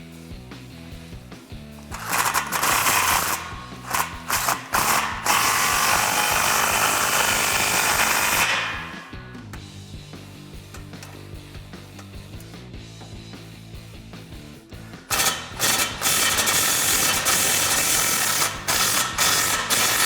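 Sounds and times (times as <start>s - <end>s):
background music: 0.0s - 20.0s
power tool tightening nuts: 1.9s - 9.2s, 15.0s - 20.0s.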